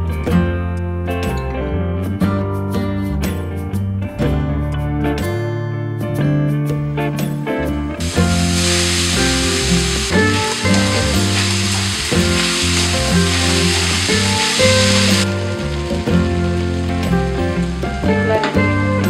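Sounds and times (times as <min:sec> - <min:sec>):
instrumental music with bass line: 0:00.0 - 0:19.0
noodles sizzling in hot oil: 0:08.0 - 0:18.7.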